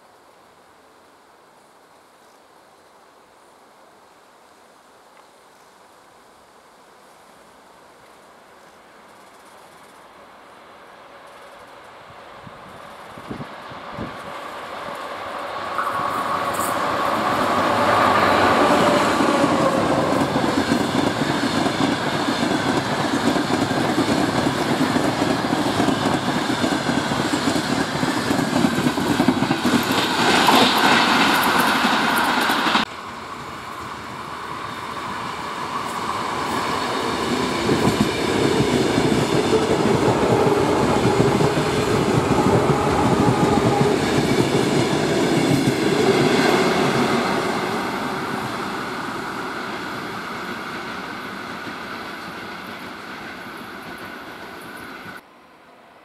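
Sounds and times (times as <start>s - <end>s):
train approaching: 7.0s - 56.0s
train wheels clattering over rails: 14.9s - 32.9s, 35.7s - 55.0s.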